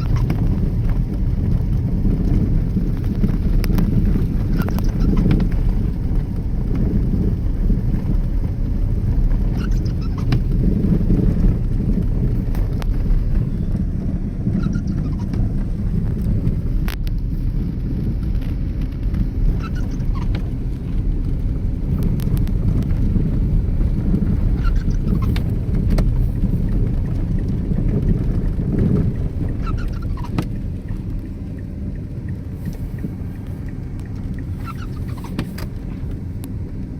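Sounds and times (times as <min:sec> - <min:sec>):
road and engine rumble: 0:00.0 - 0:36.9
faint clicks and ticks: 0:14.5 - 0:36.9.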